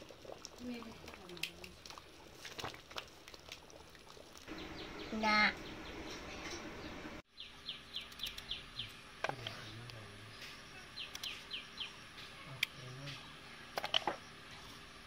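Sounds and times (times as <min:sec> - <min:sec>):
bird chirping: 0:04.5 - 0:13.4.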